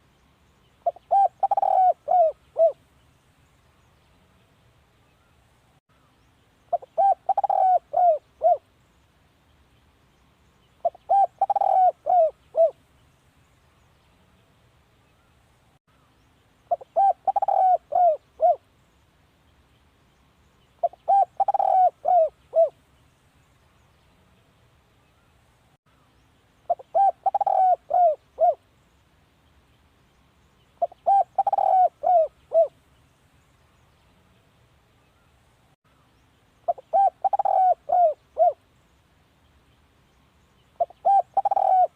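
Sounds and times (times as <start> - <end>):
dove cooing: 0.8 - 2.8, 6.7 - 8.6, 10.8 - 12.8, 16.7 - 18.6, 20.8 - 22.8, 26.7 - 28.6, 30.8 - 32.8, 36.7 - 38.6, 40.8 - 41.9.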